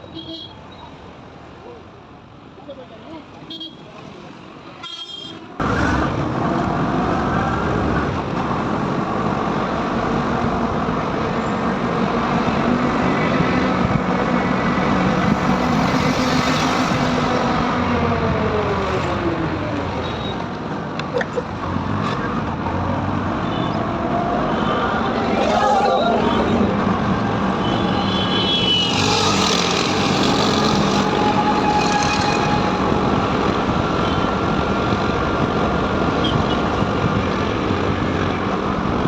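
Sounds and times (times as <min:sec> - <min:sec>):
road and wind noise: 0:00.0 - 0:39.0
motorcycle at highway speed: 0:05.6 - 0:24.1, 0:26.3 - 0:39.0.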